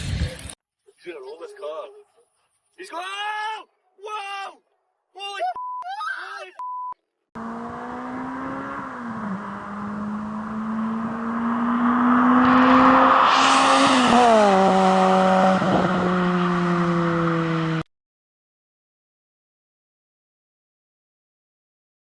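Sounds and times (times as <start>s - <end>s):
car engine accelerating: 7.4s - 17.9s
loud rush of noise: 11.1s - 16.0s.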